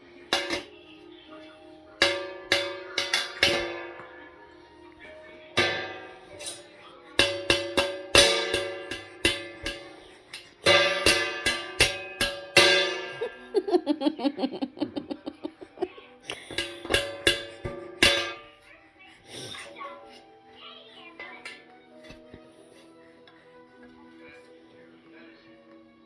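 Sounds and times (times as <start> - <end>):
plucked string instrument: 0.0 - 1.0, 1.8 - 18.7.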